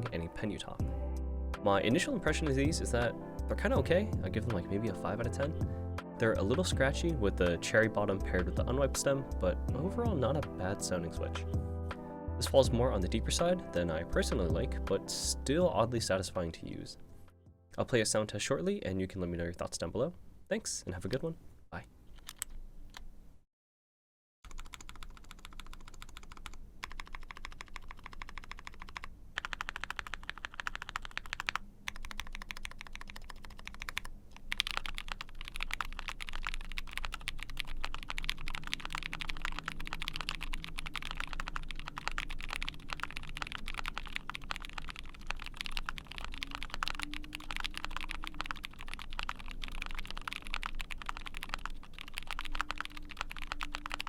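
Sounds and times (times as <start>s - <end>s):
mechanical keyboard typing: 22.2s - 22.5s, 24.5s - 54.0s.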